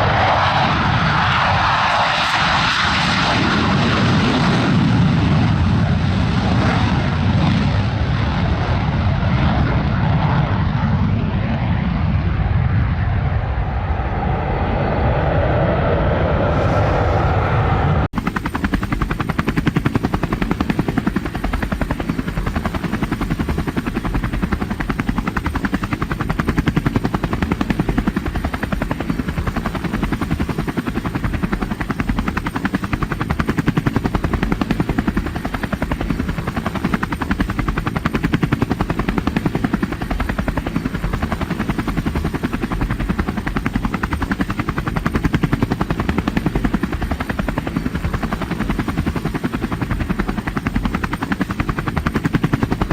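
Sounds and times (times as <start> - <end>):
helicopter rotor chopping: 16.2 - 52.9.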